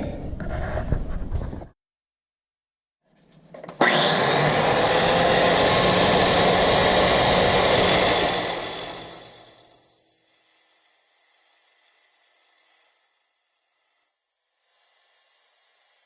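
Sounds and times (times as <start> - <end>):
cut-off wheel cutting steel: 3.8 - 10.0.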